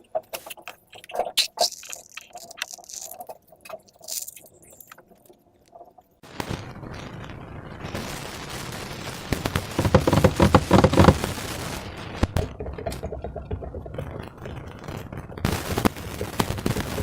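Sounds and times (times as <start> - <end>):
slime squished by hand: 0.4 - 5.0.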